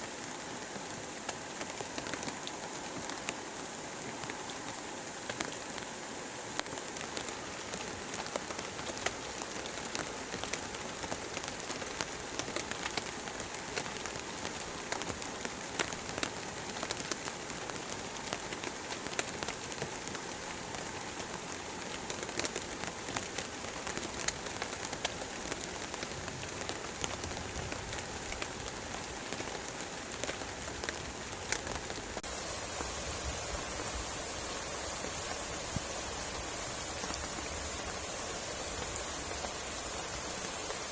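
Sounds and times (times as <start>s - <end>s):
heavy rain falling: 0.0s - 40.9s
raindrops ticking on a surface: 0.0s - 40.9s.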